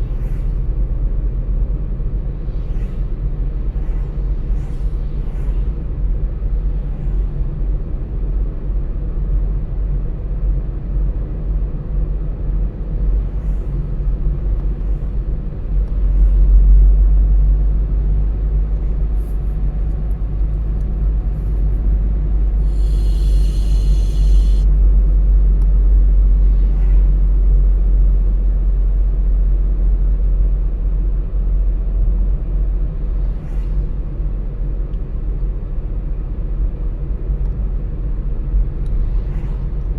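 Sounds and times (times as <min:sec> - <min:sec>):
car road and engine rumble: 0:00.0 - 0:39.9
brief high hiss: 0:22.6 - 0:24.7.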